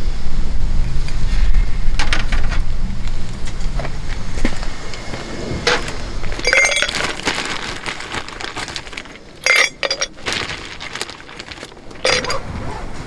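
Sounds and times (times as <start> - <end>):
sharp ringing clinks: 5.7 - 7.6, 9.4 - 10.3, 12.1 - 12.5.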